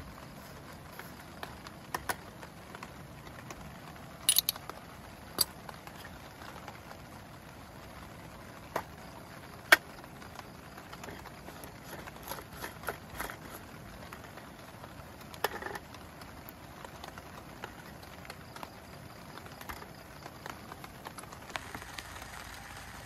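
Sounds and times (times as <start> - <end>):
rain patter: 0.0 - 23.0
sharp clinks and knocks: 4.3 - 4.6.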